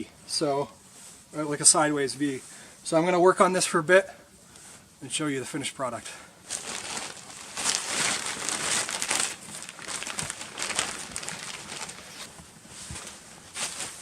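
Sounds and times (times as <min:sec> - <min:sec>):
plastic sheeting rustling and crinkling: 0:06.4 - 0:14.0.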